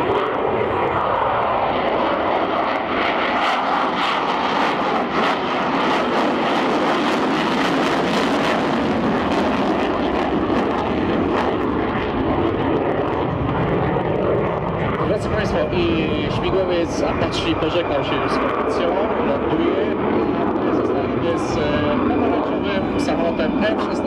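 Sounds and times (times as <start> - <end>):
helicopter rotor blades beating: 0.0 - 24.0
loud jet roar: 0.0 - 24.0.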